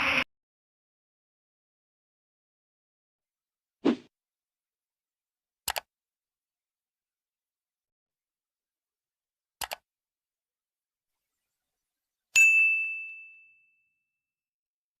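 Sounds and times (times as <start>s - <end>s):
bright ding: 12.4s - 14.0s.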